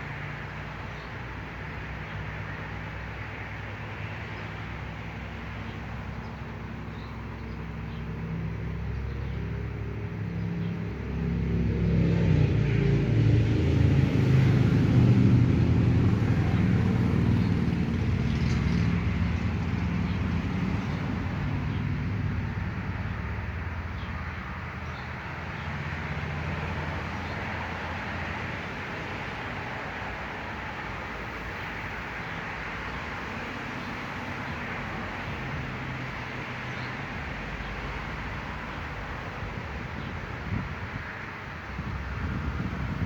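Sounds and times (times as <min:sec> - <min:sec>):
vehicle engine passing: 0:09.6 - 0:24.2.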